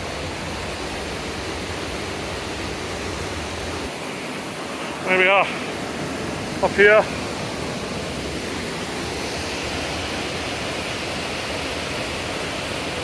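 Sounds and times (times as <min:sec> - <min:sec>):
river rapids rushing over rocks: 0:00.0 - 0:13.0.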